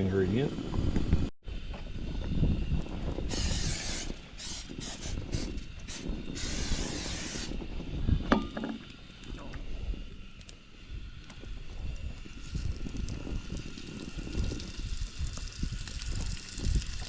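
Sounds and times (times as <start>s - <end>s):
wind rumbling on microphone: 0.0s - 17.0s
aerosol spray can hissing: 3.3s - 7.5s.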